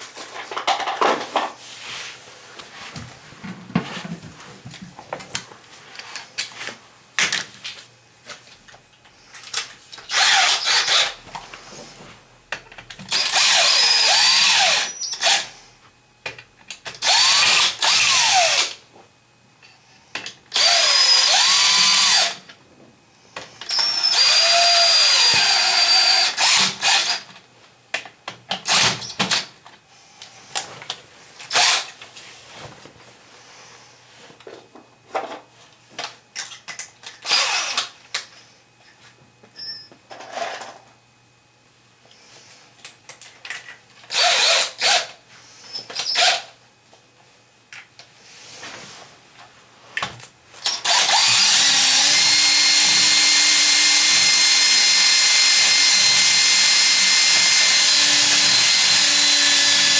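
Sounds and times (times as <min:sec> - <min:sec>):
power drill running: 0:10.1 - 0:11.2, 0:13.1 - 0:15.5, 0:17.0 - 0:18.8, 0:20.5 - 0:22.4, 0:23.7 - 0:27.2, 0:28.7 - 0:29.0, 0:31.5 - 0:31.9, 0:37.2 - 0:37.9, 0:44.1 - 0:45.1, 0:50.6 - 0:59.9.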